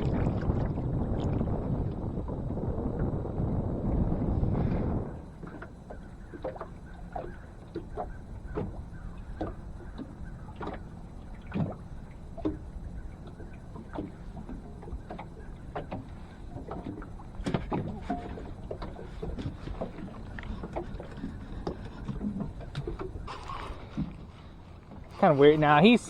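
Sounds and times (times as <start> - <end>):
wind rumble: 0.0 - 25.2
water slapping a boat hull: 0.0 - 26.0.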